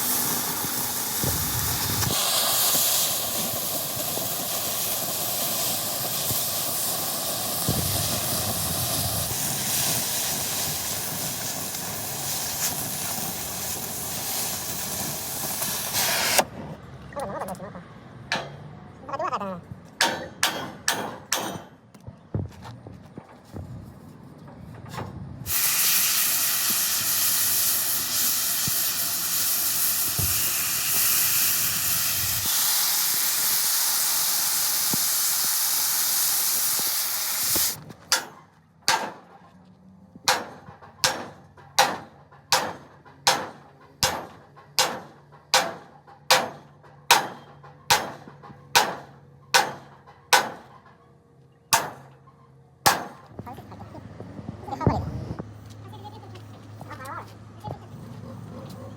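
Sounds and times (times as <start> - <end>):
rushing air hiss: 0.0 - 16.6, 25.4 - 37.8.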